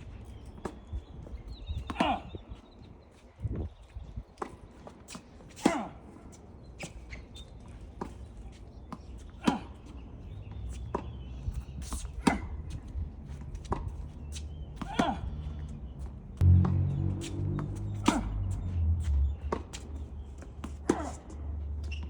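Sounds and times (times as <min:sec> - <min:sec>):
wind rumble on microphone: 0:00.0 - 0:04.4, 0:11.2 - 0:20.2
tennis ball bouncing: 0:07.9 - 0:11.2, 0:11.8 - 0:22.0
racket striking tennis ball: 0:08.9 - 0:09.8, 0:11.8 - 0:12.7, 0:14.8 - 0:15.3, 0:16.4 - 0:21.4.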